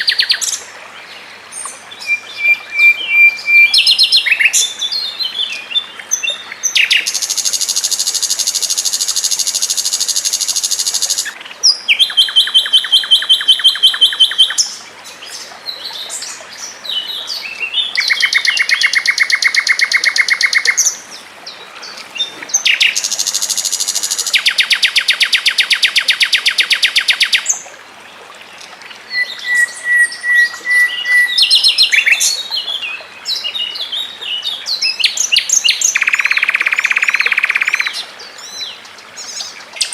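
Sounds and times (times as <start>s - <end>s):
bird chirps: 35.0s - 38.0s.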